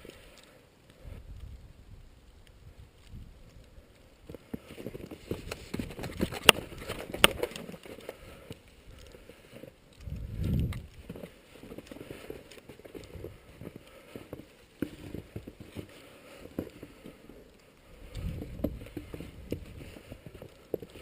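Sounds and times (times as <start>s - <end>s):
low rumble on microphone: 10.0s - 11.1s, 17.9s - 20.4s.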